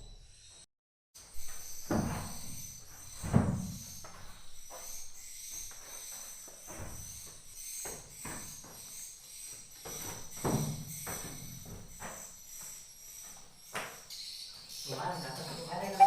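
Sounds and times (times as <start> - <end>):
swiftlets twittering: 14.9 - 16.0.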